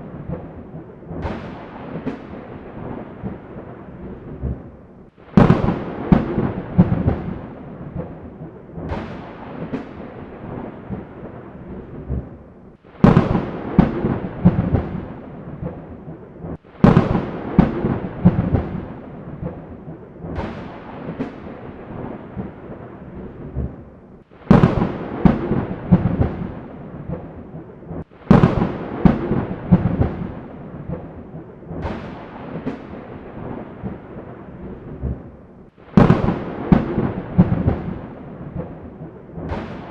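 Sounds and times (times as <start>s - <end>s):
thunder cracks and rumble: 0.0s - 39.9s
rain hiss: 24.2s - 27.2s, 28.0s - 31.0s.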